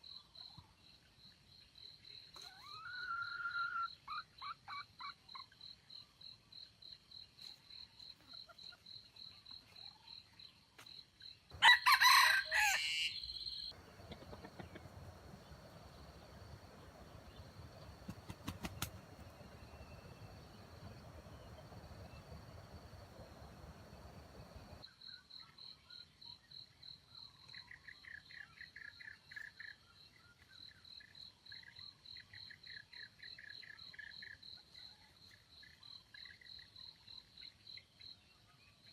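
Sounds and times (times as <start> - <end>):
rooster crowing: 11.6 - 14.9.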